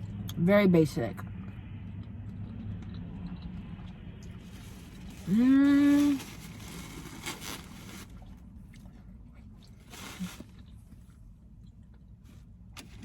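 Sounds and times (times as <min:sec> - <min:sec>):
distant road traffic rumble: 0:00.0 - 0:13.0
person chewing: 0:01.4 - 0:05.4, 0:08.1 - 0:12.6.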